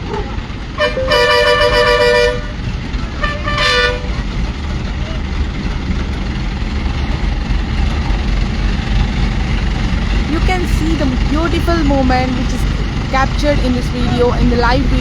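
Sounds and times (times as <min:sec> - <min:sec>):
heavy vehicle engine rumbling: 0:00.0 - 0:15.0
two-note vehicle horn blasts: 0:00.8 - 0:02.6, 0:03.2 - 0:04.2.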